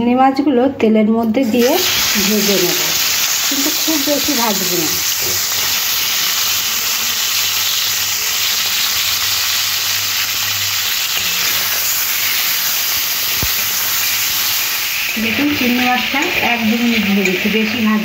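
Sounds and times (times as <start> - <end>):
prawns sizzling in hot oil: 1.4 - 18.0.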